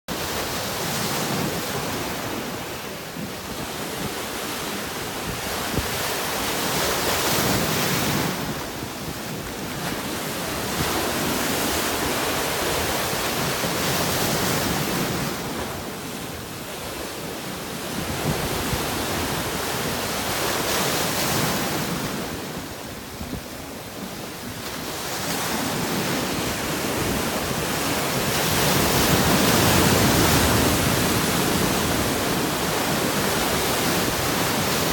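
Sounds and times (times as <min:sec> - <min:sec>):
sea waves breaking on rocks: 0:24.6 - 0:34.9.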